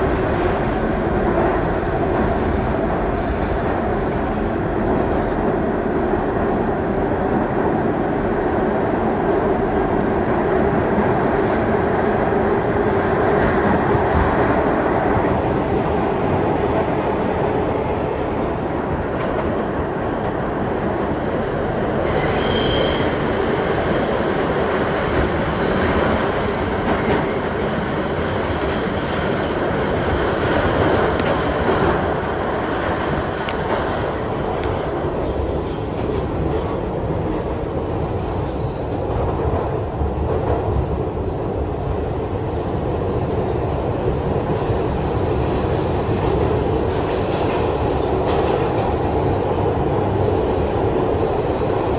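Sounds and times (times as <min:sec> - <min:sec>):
subway car rumbling on rails: 0:00.0 - 0:51.9
steel wheels squealing: 0:22.0 - 0:32.2.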